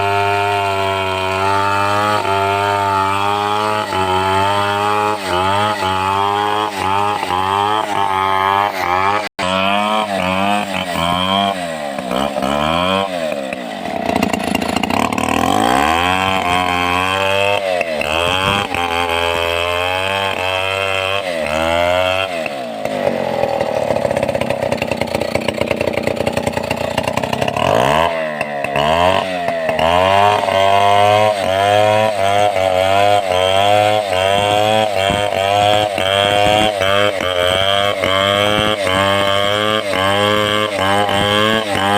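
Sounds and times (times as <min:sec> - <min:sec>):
chainsaw cutting through timber: 0:00.0 - 0:41.9.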